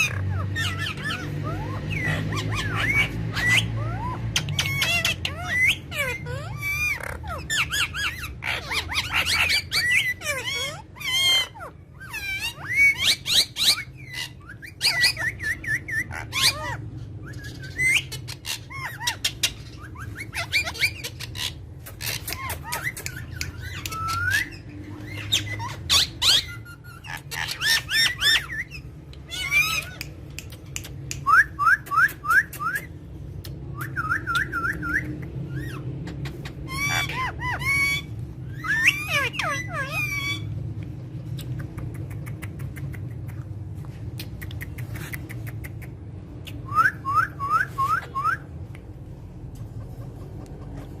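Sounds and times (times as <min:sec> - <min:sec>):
parrot whistling: 0:00.0 - 0:30.1, 0:31.1 - 0:32.9, 0:33.8 - 0:35.8, 0:36.6 - 0:40.6, 0:46.5 - 0:48.6
parrot squawks: 0:00.0 - 0:32.9, 0:33.8 - 0:40.6
steady low hum: 0:00.0 - 0:51.0.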